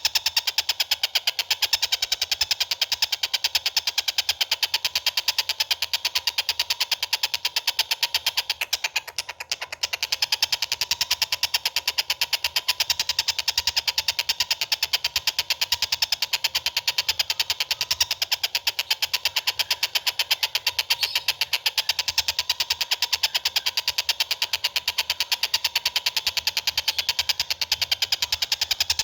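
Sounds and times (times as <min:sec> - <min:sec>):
bird trilling: 0:16.8 - 0:28.5.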